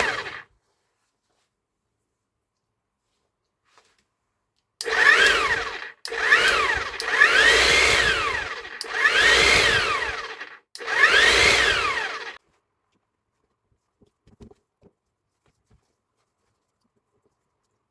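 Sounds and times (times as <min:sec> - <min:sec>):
electric breaker whining: 0:00.0 - 0:00.4, 0:04.8 - 0:12.4.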